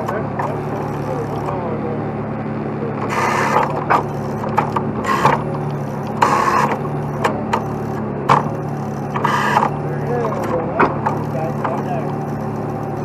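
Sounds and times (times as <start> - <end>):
diesel engine running: 0.0 - 13.0
metallic rattling and clicking: 3.0 - 13.0.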